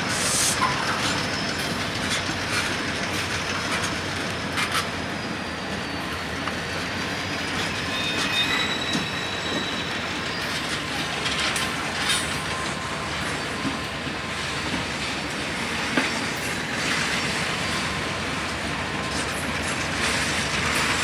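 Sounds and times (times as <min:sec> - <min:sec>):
freight train rumble: 0:00.0 - 0:21.0
wheel flange squeals: 0:00.0 - 0:21.0.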